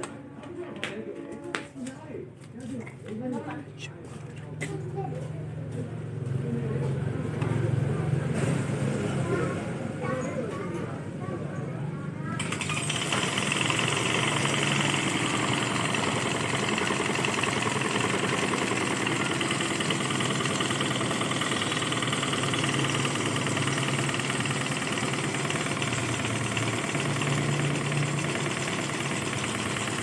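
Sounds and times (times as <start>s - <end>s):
small engine mechanical clatter: 12.4s - 30.0s.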